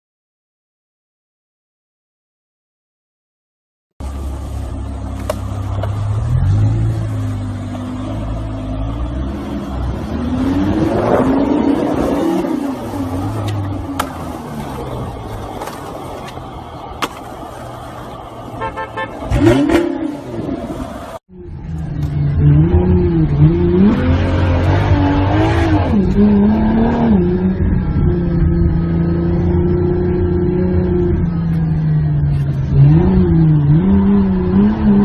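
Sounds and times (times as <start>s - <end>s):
car engine running: 4.0s - 23.9s
car horn: 18.5s - 20.1s.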